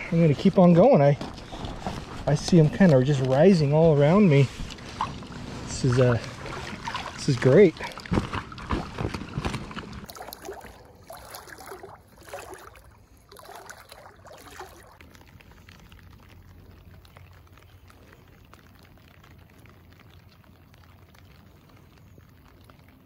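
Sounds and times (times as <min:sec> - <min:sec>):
rain on a lake: 0:00.0 - 0:23.0
water splashing and trickling: 0:00.0 - 0:23.0.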